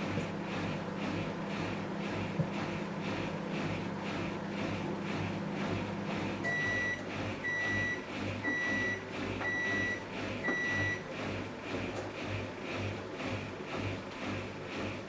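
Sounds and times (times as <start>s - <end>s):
washing machine humming: 0.0s - 15.0s
washing machine high beeps: 6.4s - 11.2s.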